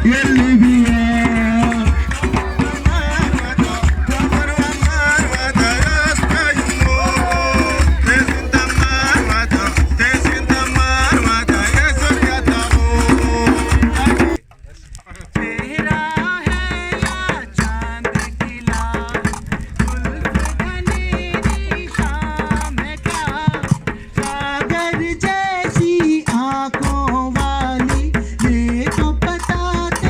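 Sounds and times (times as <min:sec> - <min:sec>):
hand drums beating: 0:00.0 - 0:14.4, 0:15.4 - 0:30.0
people singing folk song: 0:00.0 - 0:14.4, 0:15.4 - 0:30.0.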